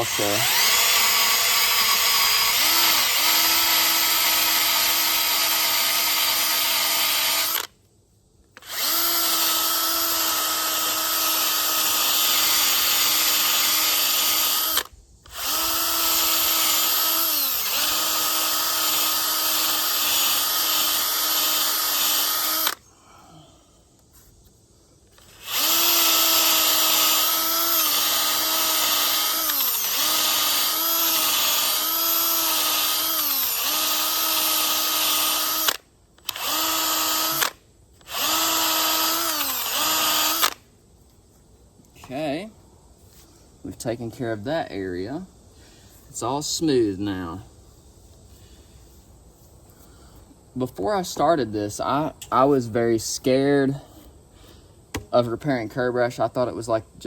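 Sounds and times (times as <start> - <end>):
electric drill sanding metal: 0.0 - 7.7, 8.6 - 22.8, 25.2 - 40.6.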